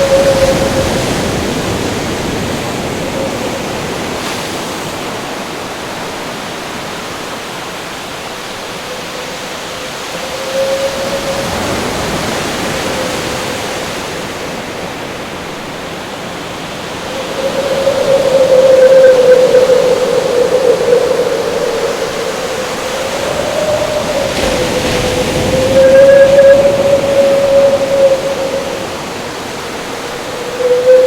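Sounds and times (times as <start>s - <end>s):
howling wind: 0.0s - 31.0s
ocean waves rushing: 0.0s - 31.0s.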